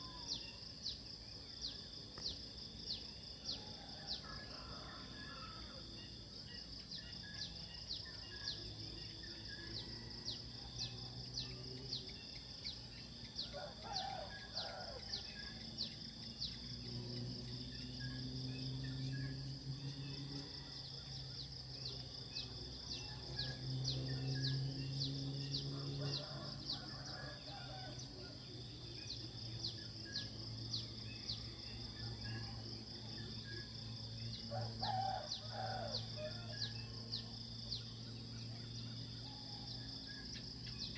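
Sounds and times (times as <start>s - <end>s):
high-pitched insect drone: 5.0s - 27.7s.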